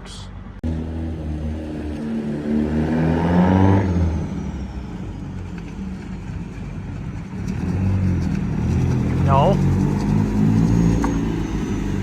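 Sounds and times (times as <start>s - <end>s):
car engine revving: 0.6s - 6.3s, 7.2s - 12.0s.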